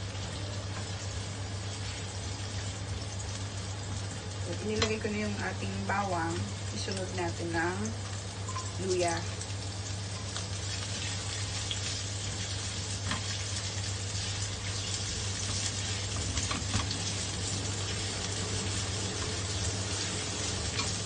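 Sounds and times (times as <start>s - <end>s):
food sizzling in hot oil: 0.0s - 21.0s
spatula clicking and scraping pan: 10.2s - 17.2s, 20.0s - 21.0s.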